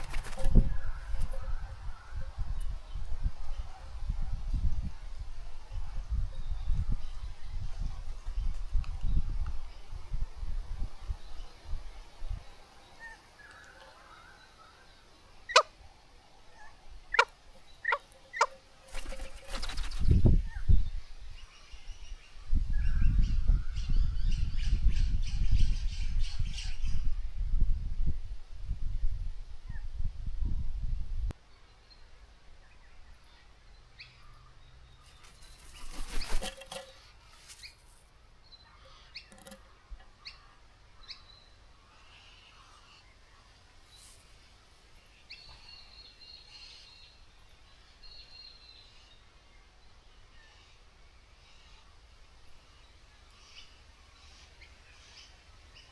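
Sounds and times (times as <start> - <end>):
birds calling: 12.9 - 15.8, 16.4 - 20.7.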